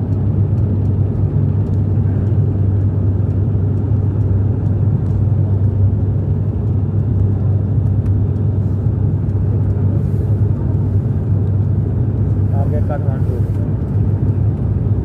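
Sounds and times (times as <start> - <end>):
airliner engines droning in cabin: 0.0 - 15.0.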